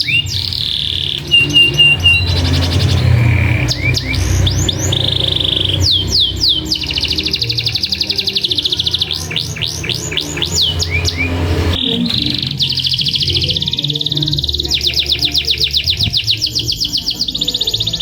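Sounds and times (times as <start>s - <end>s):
canary singing: 0.0s - 18.0s.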